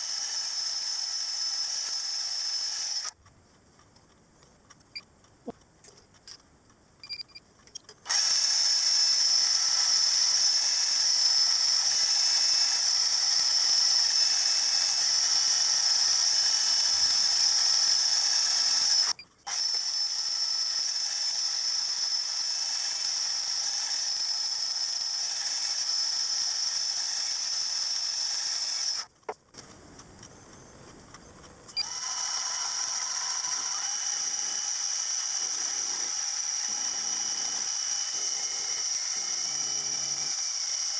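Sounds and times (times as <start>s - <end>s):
machine tool cutting metal: 31.8s - 40.9s.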